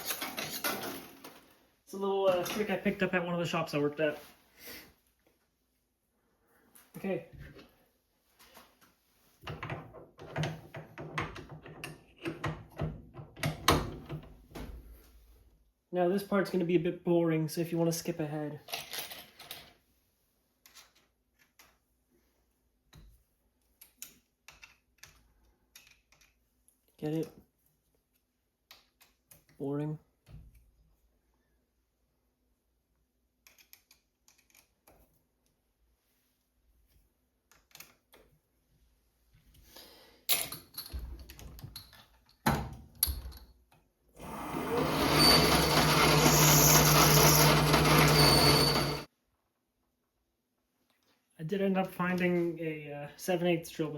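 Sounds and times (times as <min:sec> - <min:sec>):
metal tools clattering: 0:00.0 - 0:01.5
metal lathe whining: 0:44.2 - 0:49.1.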